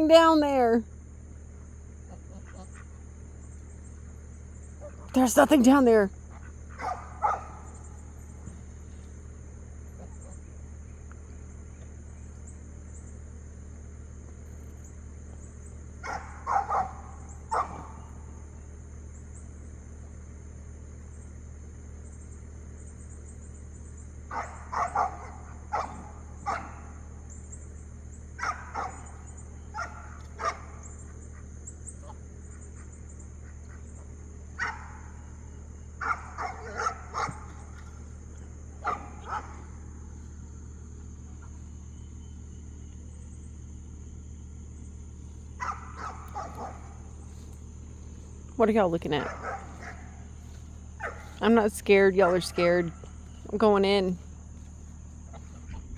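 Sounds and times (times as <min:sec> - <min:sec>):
steady low hum: 0:00.0 - 0:55.9
dog barking and yipping: 0:06.8 - 0:07.6, 0:16.0 - 0:18.0, 0:24.3 - 0:26.9, 0:28.4 - 0:30.8, 0:36.0 - 0:37.4, 0:38.8 - 0:39.6, 0:45.6 - 0:47.0, 0:49.2 - 0:50.1, 0:51.0 - 0:51.3.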